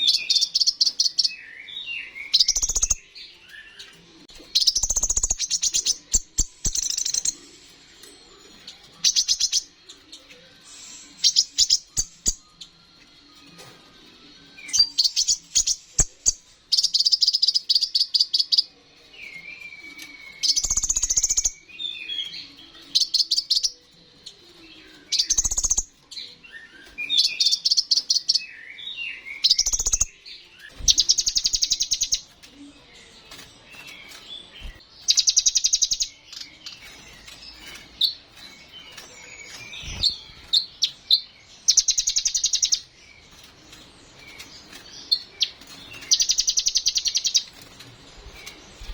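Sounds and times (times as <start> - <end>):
bird buzzy trills: 38.7 - 41.0.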